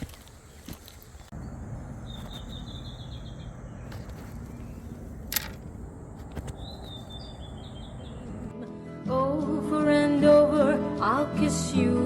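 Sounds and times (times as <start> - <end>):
low outdoor rumble: 1.0 - 8.5
bird trilling: 1.4 - 8.5.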